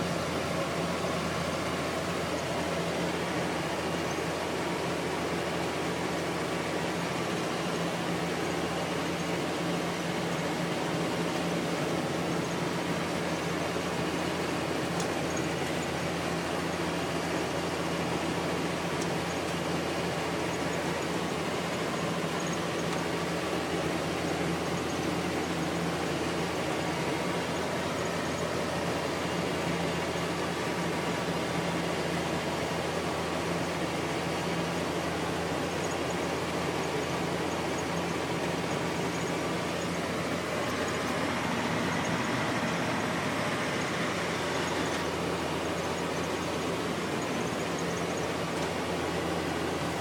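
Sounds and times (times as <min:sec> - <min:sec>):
vehicle rumble: 0:00.0 - 0:50.0.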